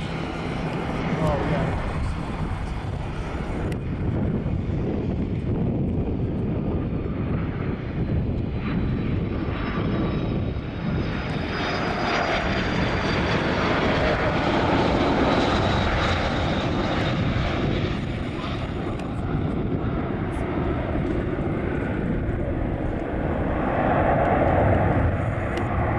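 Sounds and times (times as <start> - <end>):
airplane engines running: 0.0 - 25.9
wind rumbling on microphone: 0.0 - 25.9.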